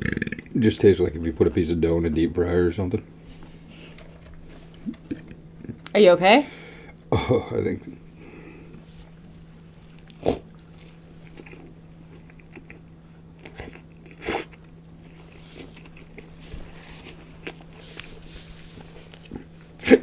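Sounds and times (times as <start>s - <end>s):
steady low hum: 0.0s - 20.0s
person biting and chewing food: 9.1s - 18.1s.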